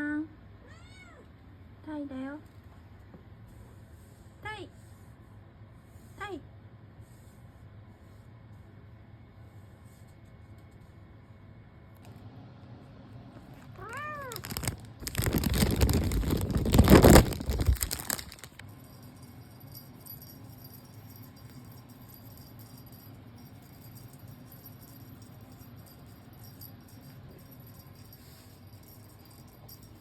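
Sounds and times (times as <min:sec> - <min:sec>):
loud rattling and rustling: 0:14.4 - 0:18.6.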